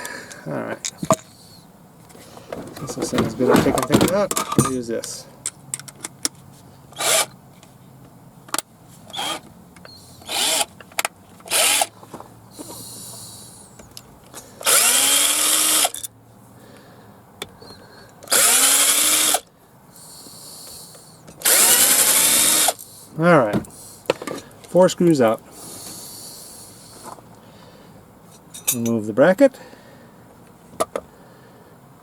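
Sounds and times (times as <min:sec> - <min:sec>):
power drill whining: 0:07.0 - 0:07.3, 0:09.1 - 0:10.7, 0:11.5 - 0:11.9, 0:14.6 - 0:16.0, 0:18.3 - 0:19.4, 0:20.8 - 0:22.8.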